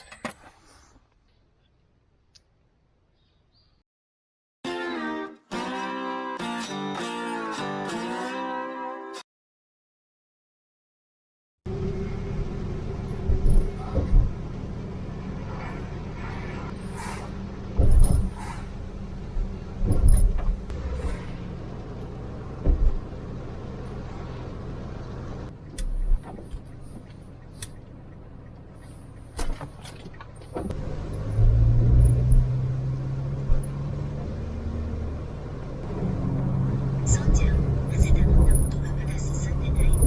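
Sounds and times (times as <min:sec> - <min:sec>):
car engine humming: 0:11.7 - 0:40.0.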